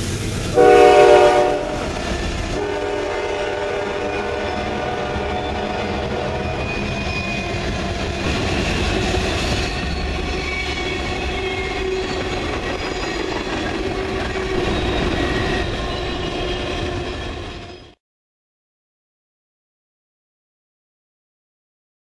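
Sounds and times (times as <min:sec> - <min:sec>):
train wheels rumbling on rails: 0:00.0 - 0:18.0
wheels squealing: 0:03.9 - 0:18.0.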